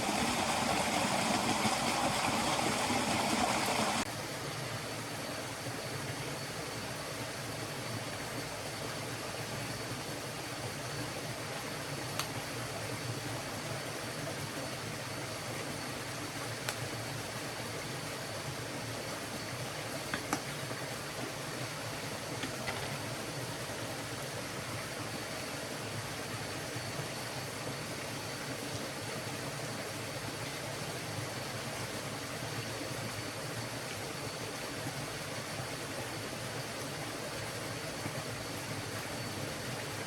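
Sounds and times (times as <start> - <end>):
forest stream rushing: 0.0 - 10.7.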